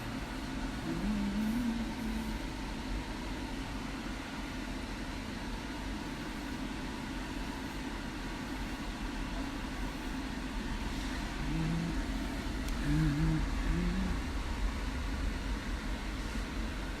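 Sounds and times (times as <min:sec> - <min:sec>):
person humming: 0:00.8 - 0:02.5, 0:11.2 - 0:14.3
low background rumble: 0:09.4 - 0:17.0.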